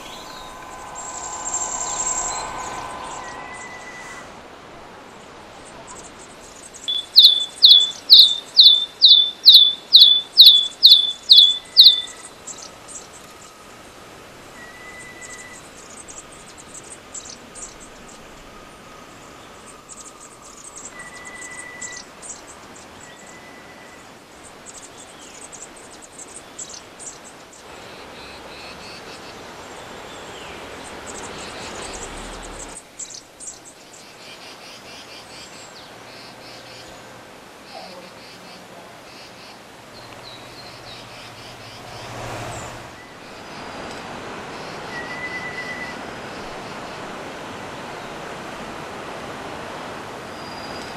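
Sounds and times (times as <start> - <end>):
faint high bird chips: 0.0 - 4.4, 6.0 - 12.3
short whistled tones: 0.0 - 4.5
bird calling sharp rising notes: 0.0 - 5.1, 6.9 - 12.3
insects buzzing: 0.0 - 14.5.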